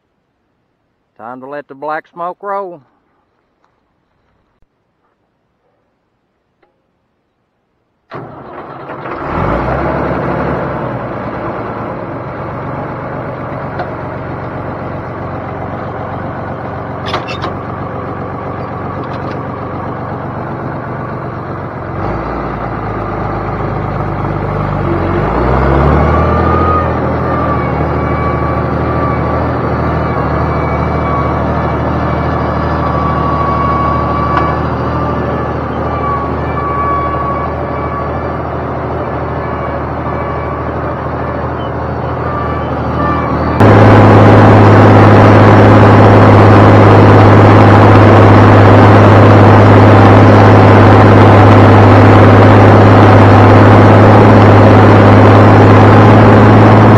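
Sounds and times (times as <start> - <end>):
diesel engine working hard: 8.1 - 56.9
steady whine: 43.5 - 56.9.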